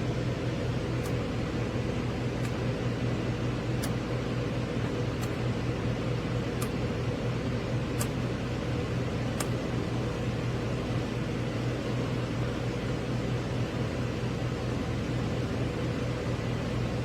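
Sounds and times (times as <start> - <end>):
fan humming: 0.0 - 17.0.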